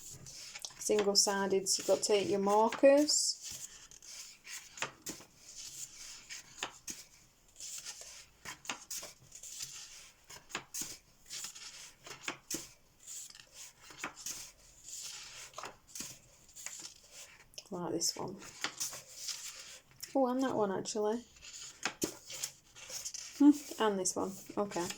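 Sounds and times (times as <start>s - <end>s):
book pages turning: 0.0s - 17.6s, 18.2s - 20.5s, 21.2s - 24.9s.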